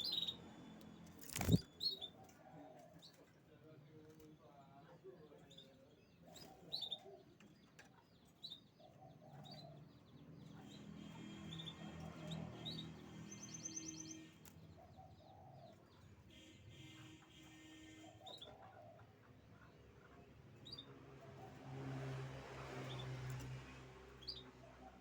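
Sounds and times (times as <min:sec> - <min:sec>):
canaries chirping: 0:00.0 - 0:02.4, 0:04.8 - 0:21.5, 0:24.2 - 0:25.0.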